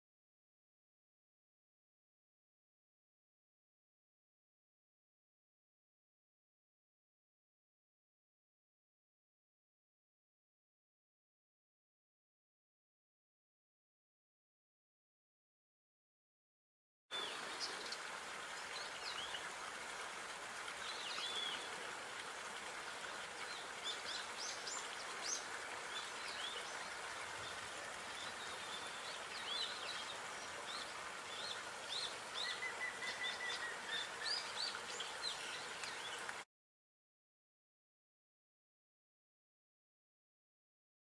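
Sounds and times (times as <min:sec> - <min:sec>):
steady outdoor hiss: 0:17.1 - 0:36.4
small birds chirping: 0:20.8 - 0:21.8, 0:22.9 - 0:36.4.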